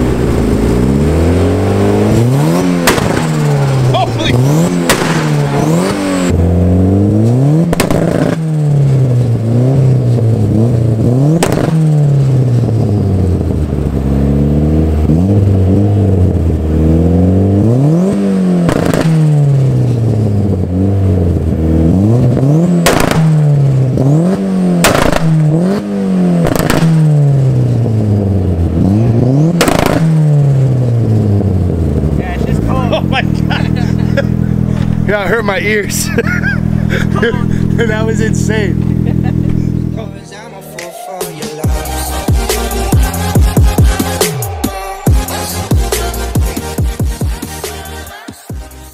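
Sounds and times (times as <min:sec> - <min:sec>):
loud sharp exhaust cracks: 0:00.0 - 0:06.5, 0:07.6 - 0:14.0, 0:18.1 - 0:20.7, 0:22.2 - 0:39.9
car engine revving against limiter: 0:00.0 - 0:40.4, 0:41.4 - 0:48.9.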